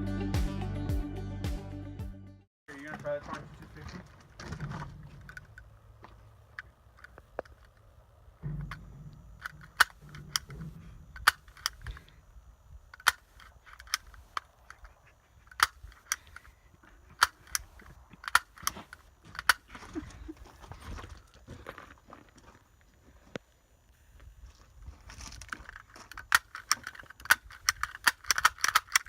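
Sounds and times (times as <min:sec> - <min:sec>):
sharp irregular clicks and taps: 0:26.0 - 0:29.0.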